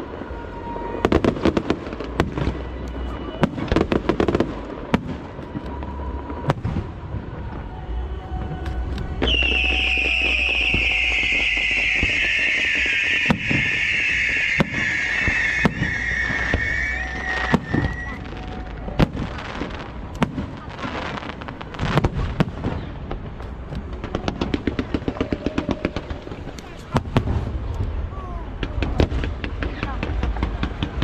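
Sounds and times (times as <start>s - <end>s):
firework whistle: 0.0s - 20.0s
firework crackling: 0.0s - 31.0s
firework shells bursting: 9.2s - 18.2s.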